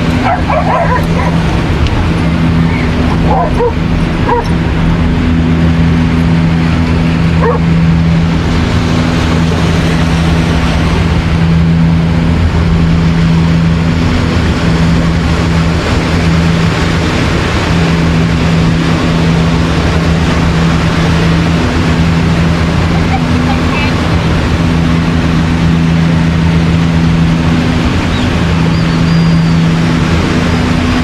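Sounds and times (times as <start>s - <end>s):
low drone: 0.0s - 31.0s
ocean surf: 0.0s - 31.0s
dog barking: 0.2s - 1.4s, 3.2s - 4.5s, 7.4s - 7.7s.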